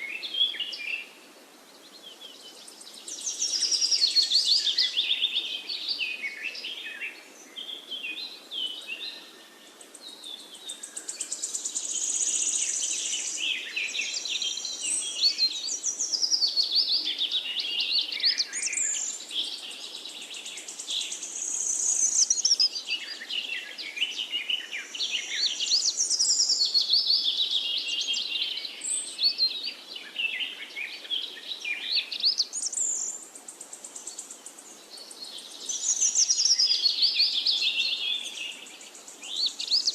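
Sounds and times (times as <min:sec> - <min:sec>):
faint steady hiss: 0:00.0 - 0:39.9
songbirds chorus: 0:00.0 - 0:39.9.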